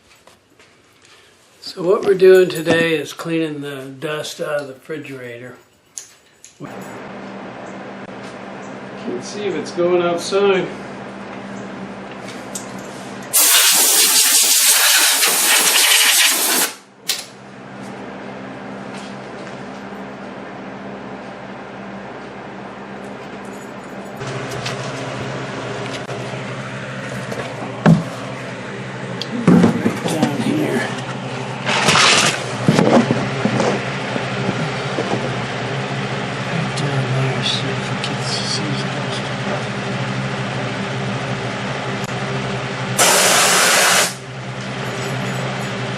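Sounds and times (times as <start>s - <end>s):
box fan humming: 5.3s - 45.9s
compressed air hissing: 13.3s - 16.8s, 43.0s - 44.2s.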